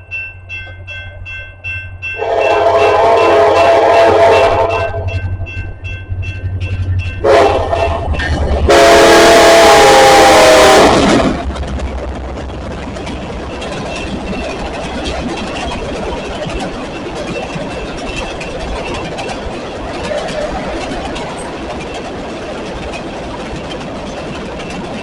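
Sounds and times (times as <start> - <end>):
train engine rumbling: 0.0 - 25.0
locomotive air horn blasts: 2.2 - 5.2, 7.2 - 11.2.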